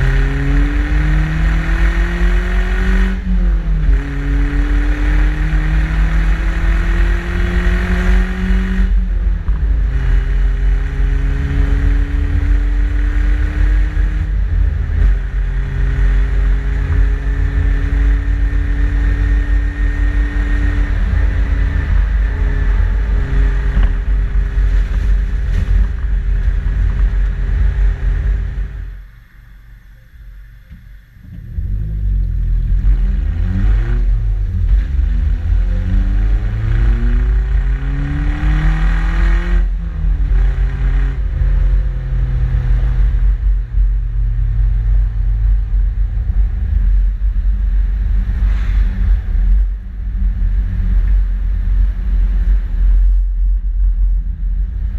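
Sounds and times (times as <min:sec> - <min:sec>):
car engine and exhaust: 0:00.0 - 0:54.9.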